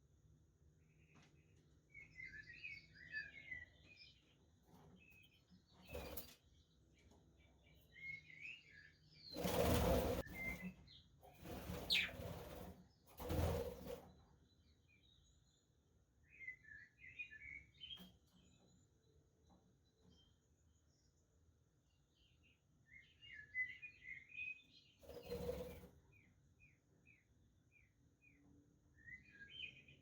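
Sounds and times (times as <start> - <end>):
wing flapping: 9.4 - 14.2
budgerigars chirping and warbling: 11.7 - 12.4.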